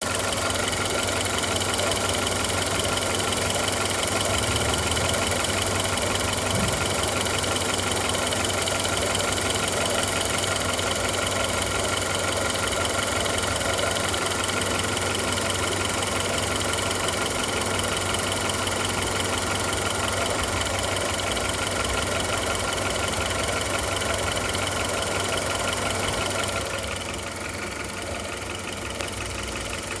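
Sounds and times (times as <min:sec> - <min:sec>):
car engine idling with ticking: 0:00.0 - 0:30.0.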